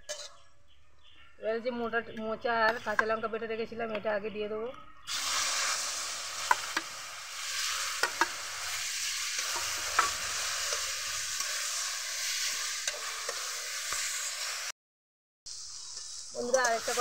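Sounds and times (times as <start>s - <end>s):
paste sizzling in oil: 5.1s - 14.7s, 15.5s - 17.0s
metal spatula scraping pan: 7.4s - 14.5s, 15.8s - 17.0s.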